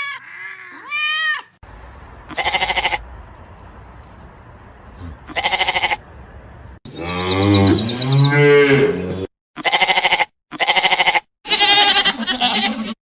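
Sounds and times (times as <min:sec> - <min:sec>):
quavering farm animal bleats: 0:02.3 - 0:03.0, 0:04.9 - 0:06.0, 0:06.9 - 0:13.0
cow mooing: 0:06.9 - 0:09.9.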